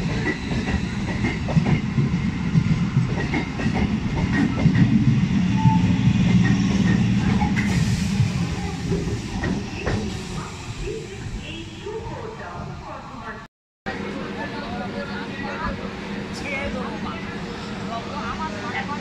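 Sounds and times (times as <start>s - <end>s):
train wheels rumbling on track: 0.0s - 12.4s
hiss: 7.6s - 9.2s.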